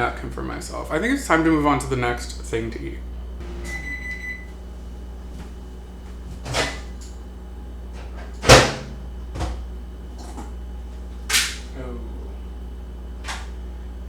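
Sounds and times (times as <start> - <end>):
short electronic beep: 3.4 - 4.6.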